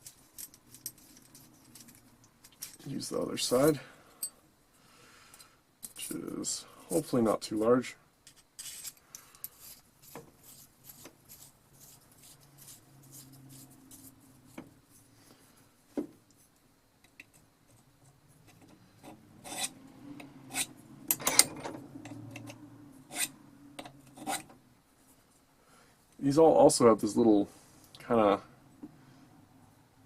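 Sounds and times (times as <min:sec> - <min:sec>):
sharpening rod scraping metal: 0:08.3 - 0:14.2, 0:18.5 - 0:19.8, 0:20.5 - 0:21.5, 0:22.1 - 0:24.5.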